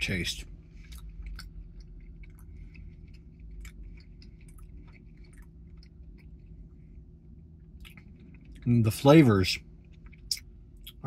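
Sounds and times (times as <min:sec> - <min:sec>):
low hum: 0:00.0 - 0:11.0
chewing with wet mouth clicks: 0:00.8 - 0:06.8, 0:07.5 - 0:08.8, 0:09.7 - 0:11.0.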